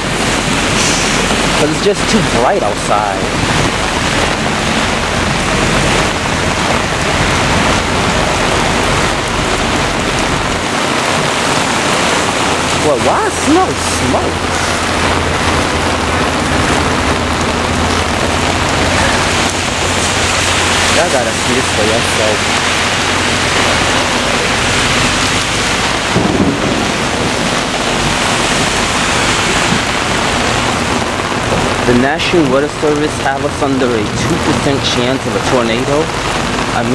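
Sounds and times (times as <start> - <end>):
heavy rain pouring: 0.0 - 36.9
low thunder rumble: 0.0 - 36.9.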